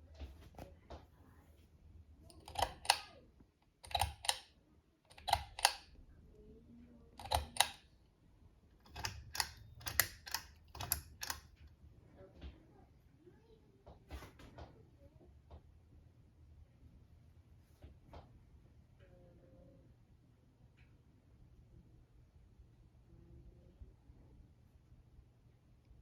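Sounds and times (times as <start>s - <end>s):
faint low hum: 0.0s - 26.0s
sharp mechanical clicks: 2.3s - 3.1s, 3.8s - 4.5s, 5.1s - 5.9s, 7.2s - 7.9s, 8.8s - 11.6s.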